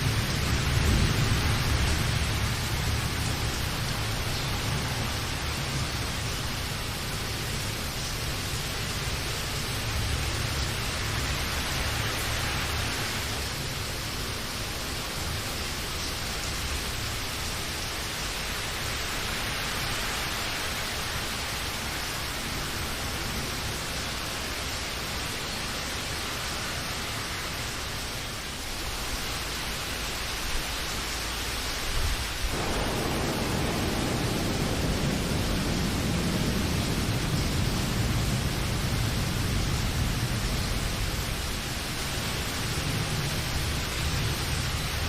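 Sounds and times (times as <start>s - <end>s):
steady rain hiss: 0.0s - 45.0s.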